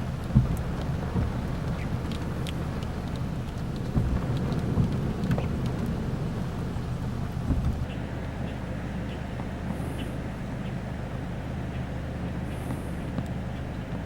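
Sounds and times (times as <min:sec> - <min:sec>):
low vehicle rumble: 0:00.0 - 0:14.0
rain pattering: 0:00.0 - 0:14.0
loud thump: 0:07.4 - 0:07.9.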